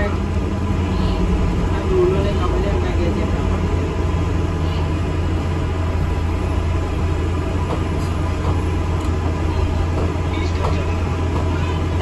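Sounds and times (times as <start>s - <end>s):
bus engine rumble: 0.0s - 12.0s
road noise: 0.0s - 12.0s.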